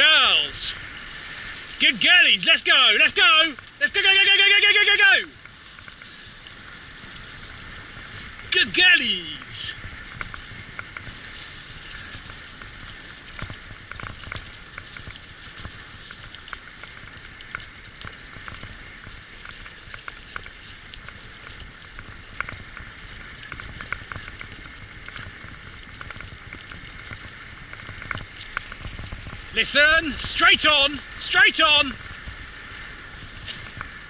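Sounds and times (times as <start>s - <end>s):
wheels crackling rumble: 0.0s - 34.0s
small clicks and rattles: 4.9s - 34.0s.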